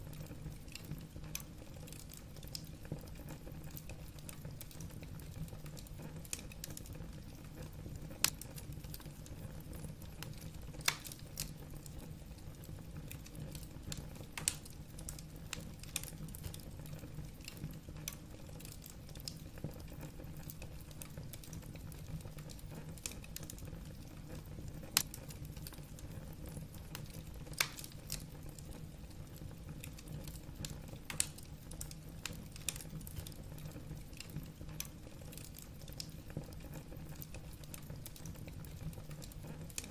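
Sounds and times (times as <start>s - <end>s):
logs crackling in fireplace: 0.0s - 39.9s
sharp pops of burning wood: 10.2s - 11.6s, 13.1s - 16.6s, 26.9s - 28.8s, 29.8s - 36.2s.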